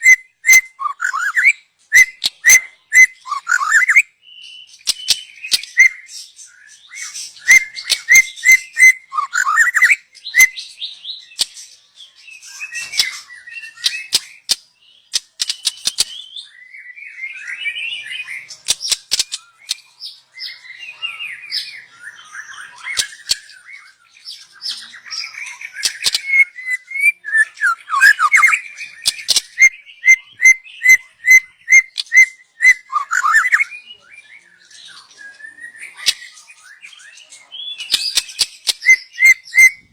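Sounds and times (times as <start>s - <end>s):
bird singing whistled phrases: 0.0s - 11.4s, 12.2s - 14.6s, 15.4s - 39.9s
sharp clicks: 15.2s - 16.1s.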